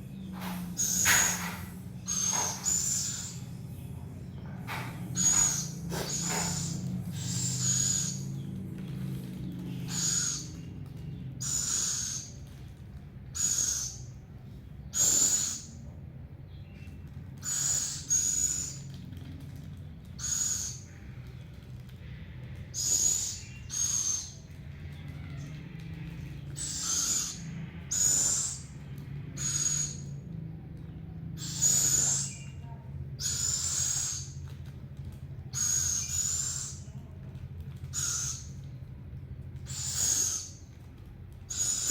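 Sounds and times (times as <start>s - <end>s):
owl hissing screeches: 0.4s - 3.5s, 4.8s - 8.3s, 11.4s - 12.4s, 14.9s - 15.8s, 17.4s - 18.8s, 26.6s - 28.7s, 29.4s - 30.1s, 31.4s - 32.4s, 33.2s - 34.4s, 35.5s - 36.8s, 37.9s - 38.5s, 39.7s - 40.6s, 41.5s - 41.9s.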